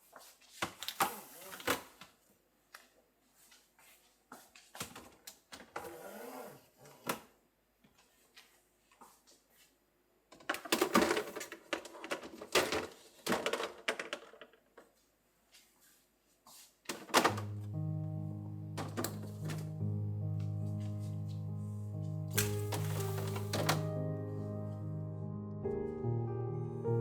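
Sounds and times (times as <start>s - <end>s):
household items clicking and rustling: 10.3s - 15.0s, 16.9s - 17.6s, 18.8s - 19.8s, 22.3s - 24.0s
background music: 17.3s - 27.0s.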